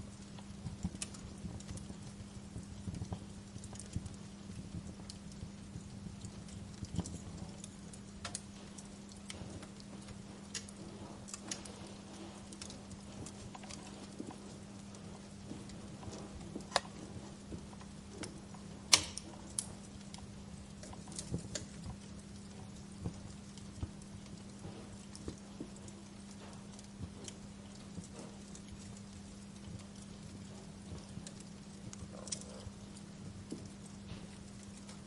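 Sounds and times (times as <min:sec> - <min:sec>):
sharp pops and snaps: 0:00.0 - 0:35.0
steady low hum: 0:00.0 - 0:35.0
wood fire crackling: 0:00.0 - 0:35.0.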